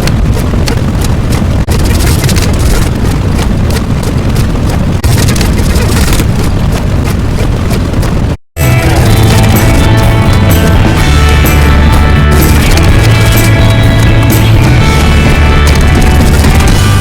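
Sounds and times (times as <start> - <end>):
rough crackly rumbling noise: 0.0 - 17.0.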